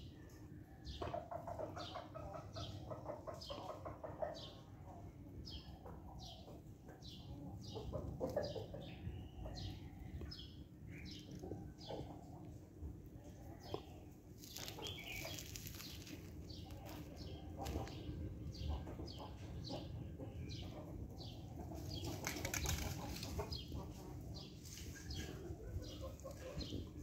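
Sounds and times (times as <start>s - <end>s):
birds chirping: 13.2s - 27.0s.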